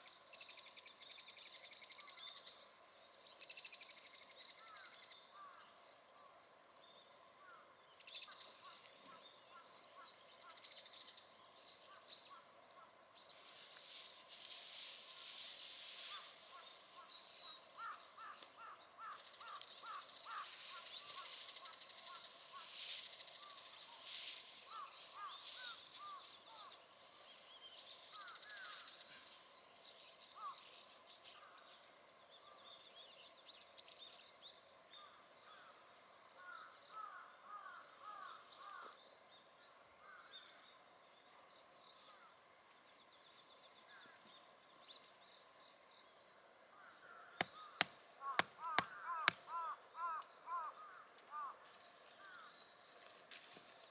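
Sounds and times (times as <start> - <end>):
small birds chirping: 8.0 - 34.7
rustling: 13.5 - 17.9, 20.3 - 29.5.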